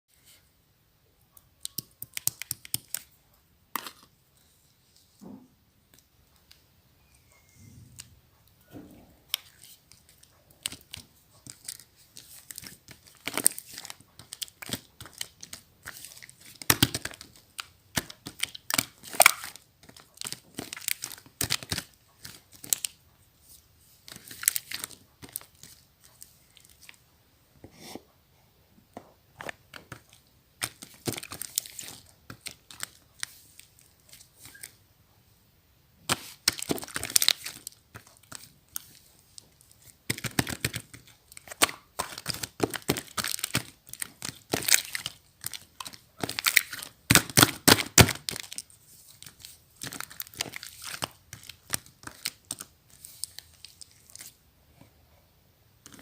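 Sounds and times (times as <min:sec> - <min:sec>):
slime crackling and popping: 0:10.5 - 0:22.9, 0:36.1 - 0:48.7.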